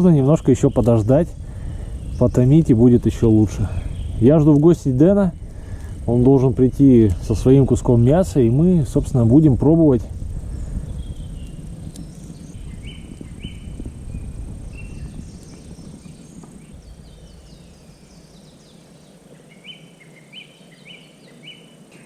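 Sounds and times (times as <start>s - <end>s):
low noise: 0.0s - 22.0s
faint clicks: 5.6s - 6.1s, 11.4s - 12.6s.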